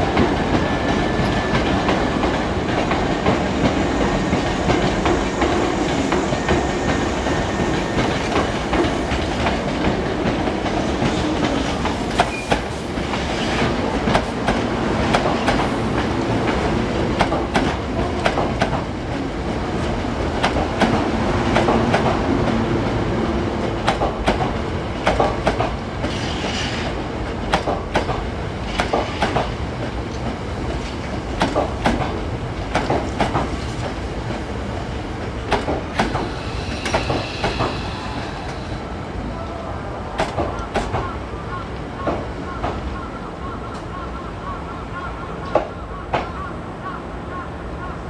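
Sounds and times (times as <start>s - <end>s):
train wheels clicking over rail joints: 0.0s - 22.6s, 23.8s - 38.7s, 40.2s - 41.2s
train rumble: 0.0s - 48.0s
high wheel squeal: 4.0s - 9.3s, 36.2s - 38.9s.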